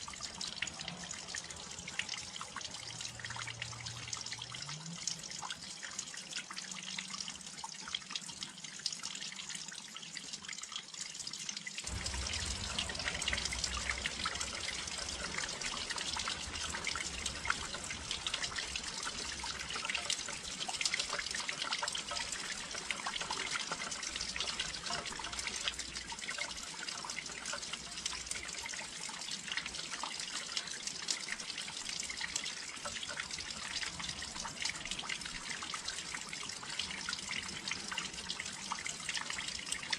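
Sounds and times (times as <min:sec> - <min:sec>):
rain patter and drips: 0:00.0 - 0:39.9
low steady rumble: 0:11.9 - 0:21.3.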